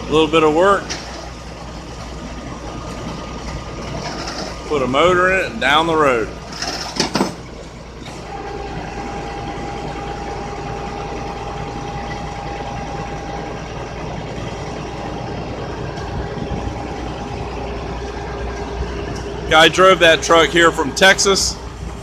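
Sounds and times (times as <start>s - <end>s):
engine idling: 0.0s - 22.0s
steady engine whine: 0.0s - 22.0s.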